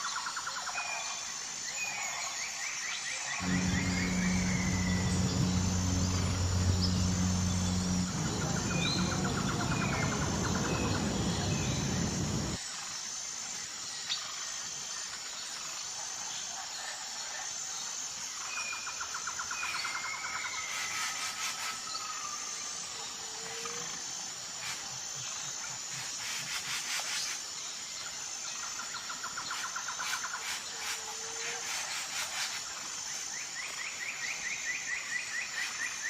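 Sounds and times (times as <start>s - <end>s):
birds chirping: 3.4s - 12.6s
high insect trill: 3.4s - 12.6s
low motor hum: 3.4s - 12.6s.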